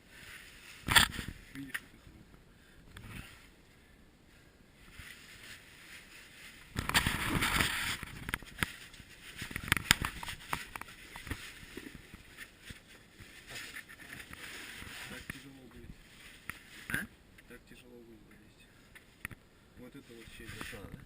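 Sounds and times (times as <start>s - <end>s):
clothing rustling against rock: 0.0s - 2.2s, 2.9s - 17.1s, 20.0s - 21.0s.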